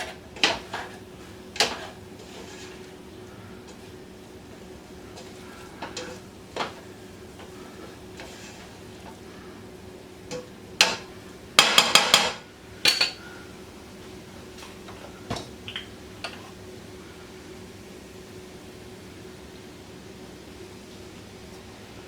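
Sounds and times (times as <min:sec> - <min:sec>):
utensil knocking against cooking pot: 0:10.3 - 0:13.2.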